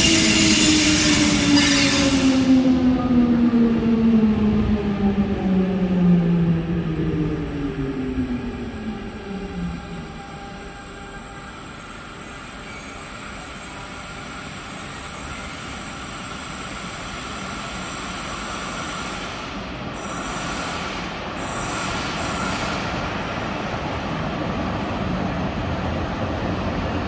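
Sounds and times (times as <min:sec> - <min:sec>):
train wheels squealing on rails: 0:00.0 - 0:02.6, 0:08.8 - 0:24.5.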